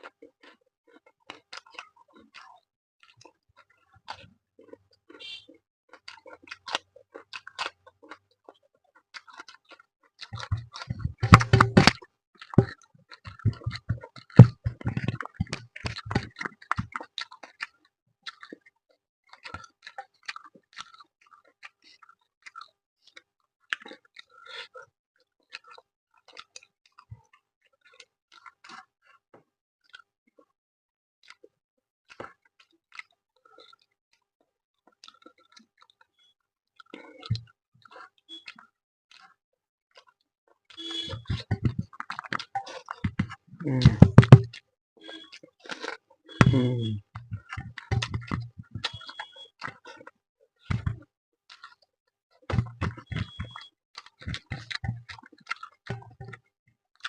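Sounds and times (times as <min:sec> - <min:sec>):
person chewing food: 0:00.0 - 0:30.6, 0:31.2 - 0:36.1, 0:36.7 - 0:57.0
knocks and thumps: 0:10.4 - 0:12.0, 0:13.4 - 0:16.3, 0:40.8 - 0:44.5, 0:46.4 - 0:49.2, 0:50.7 - 0:51.0, 0:52.5 - 0:53.6, 0:54.3 - 0:55.2, 0:55.9 - 0:56.4.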